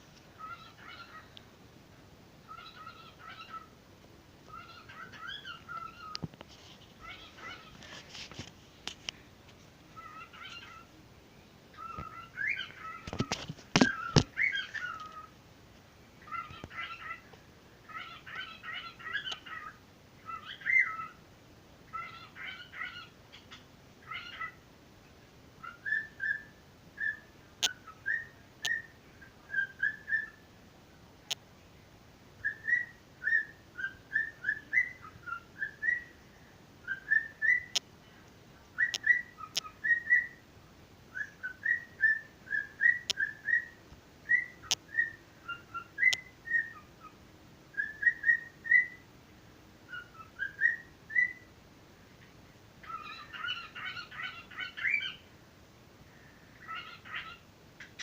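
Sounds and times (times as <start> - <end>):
pet bird whistling: 32.4 - 36.1, 36.9 - 37.7, 38.8 - 40.4, 41.1 - 46.9, 47.8 - 49.0, 49.9 - 51.4.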